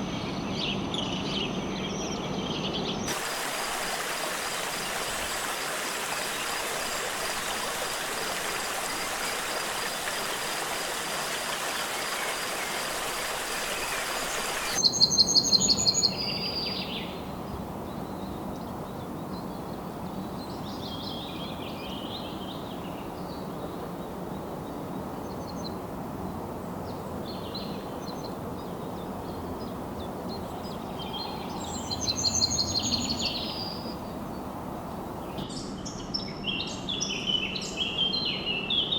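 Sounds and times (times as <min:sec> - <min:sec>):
rushing water hiss: 0:03.1 - 0:14.9
soft warbling bird calls: 0:03.1 - 0:15.4.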